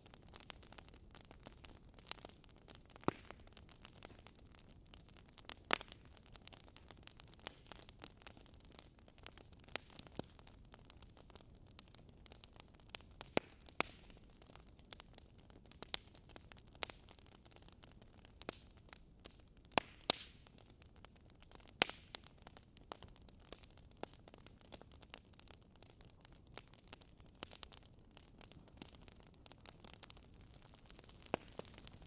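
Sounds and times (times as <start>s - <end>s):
fireplace fire crackling: 0.0s - 32.0s.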